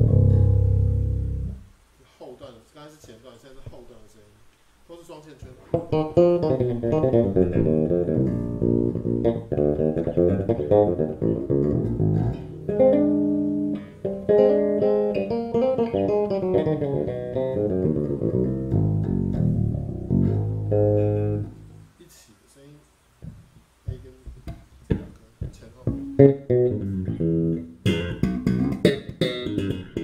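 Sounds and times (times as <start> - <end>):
electric bass plucked notes: 0.0 - 1.7, 5.8 - 21.9, 25.8 - 30.0.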